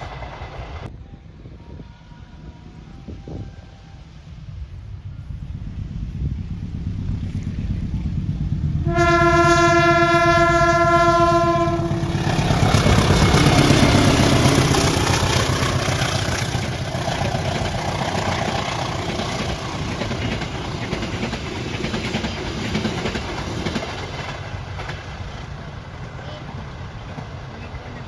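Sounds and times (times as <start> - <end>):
train rumbling past: 0.0 - 28.0
train horn blast: 8.8 - 16.2
wheels on rails: 11.8 - 28.0.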